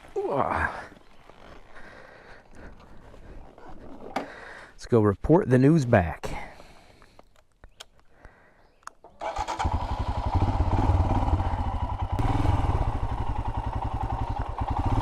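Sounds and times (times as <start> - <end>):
motorcycle engine starting and idling: 9.0 - 15.0.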